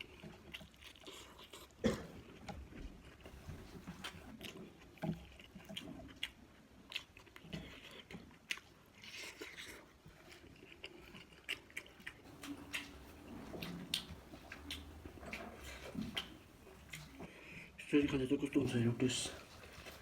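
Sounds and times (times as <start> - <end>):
person chewing food: 0.0 - 17.9, 18.6 - 20.0
crunchy rustling: 12.2 - 17.4, 18.6 - 20.0.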